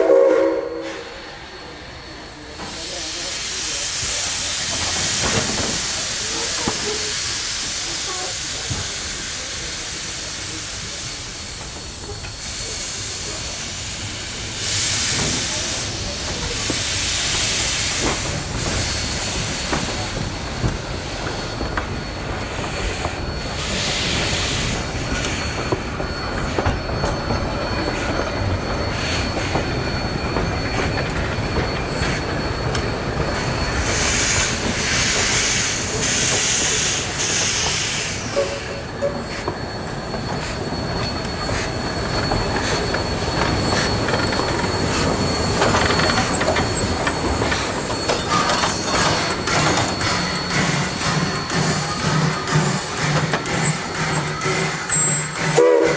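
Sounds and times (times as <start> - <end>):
steam hissing: 0.0 - 55.9
steam locomotive rumble: 0.0 - 55.9
wheels squealing on rail: 0.0 - 55.9.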